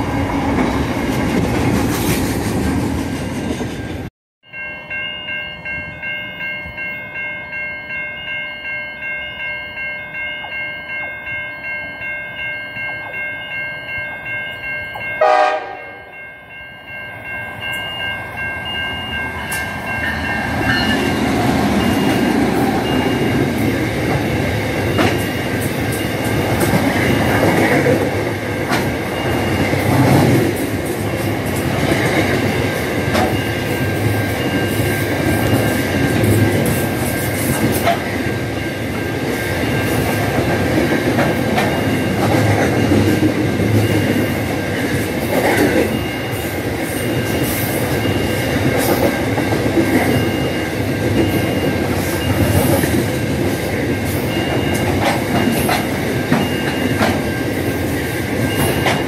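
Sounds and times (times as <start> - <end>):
freight train rumbling past: 0.0 - 7.0, 11.6 - 59.0
level crossing warning bells: 3.4 - 59.0
loud horn blast: 15.2 - 16.0.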